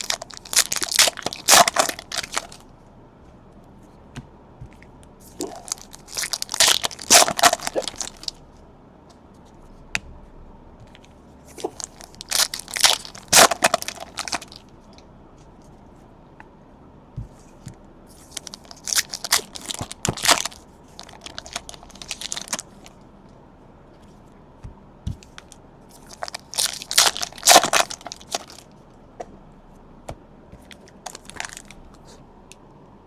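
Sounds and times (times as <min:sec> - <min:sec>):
wrappers ripped and crinkled: 0:00.0 - 0:02.6, 0:05.4 - 0:08.4, 0:11.6 - 0:14.6, 0:18.2 - 0:22.9, 0:25.9 - 0:28.7, 0:31.1 - 0:31.8.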